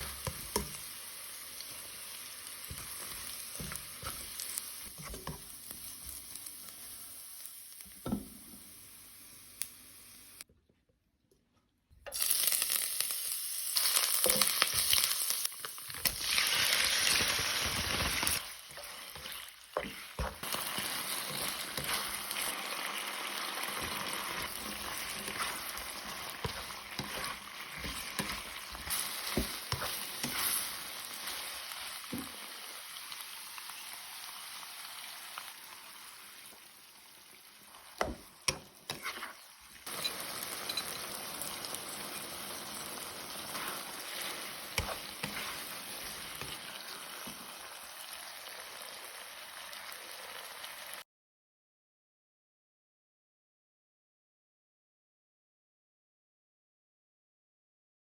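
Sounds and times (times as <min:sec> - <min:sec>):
food sizzling in hot oil: 0:00.0 - 0:10.5, 0:12.1 - 0:51.0.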